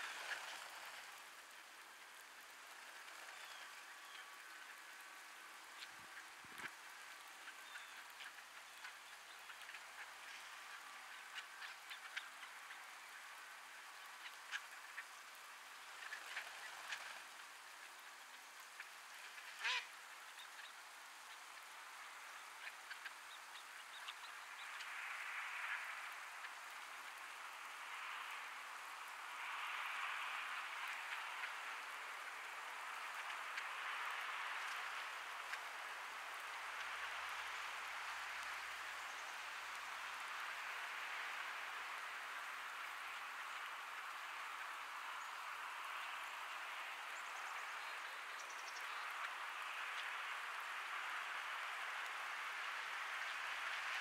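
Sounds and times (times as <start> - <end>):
light rain hiss: 0.0 - 54.0.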